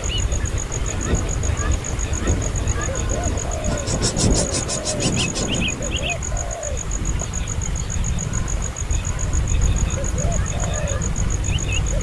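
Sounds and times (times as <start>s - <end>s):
insect pulsing chirp: 0.0s - 12.0s
baby bird cheeping: 2.0s - 6.8s.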